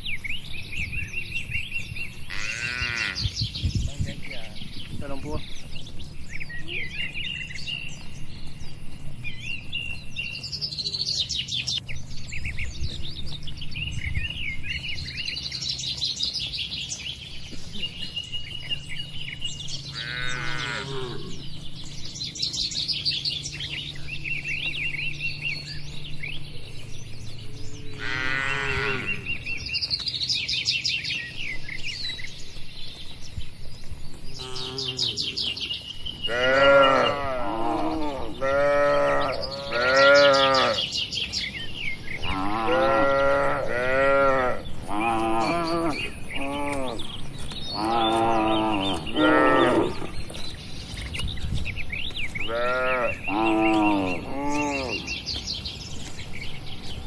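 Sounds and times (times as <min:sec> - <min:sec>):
small birds chirping: 0:00.0 - 0:57.0
cattle mooing: 0:02.3 - 0:03.2, 0:19.9 - 0:21.4, 0:27.9 - 0:29.3, 0:34.4 - 0:35.4, 0:36.2 - 0:40.9, 0:42.2 - 0:47.1, 0:47.8 - 0:50.2, 0:52.4 - 0:55.1.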